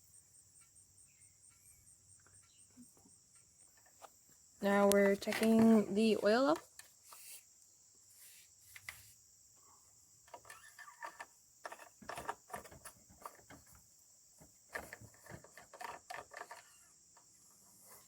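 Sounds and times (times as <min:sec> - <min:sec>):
crickets chirring: 0:00.0 - 0:18.0
handling clicks and rustles: 0:03.7 - 0:07.3, 0:10.3 - 0:18.0.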